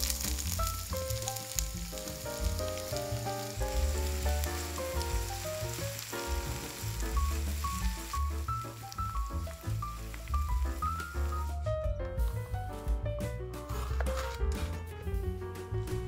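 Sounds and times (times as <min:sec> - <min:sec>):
onion sizzling in oil: 0:00.0 - 0:11.7
background music: 0:00.0 - 0:16.0.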